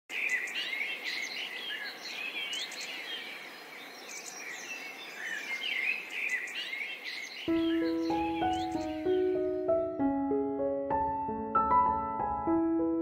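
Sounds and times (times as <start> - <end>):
outdoor background hiss: 0.1 - 10.0
birds chirping and singing: 0.1 - 10.1.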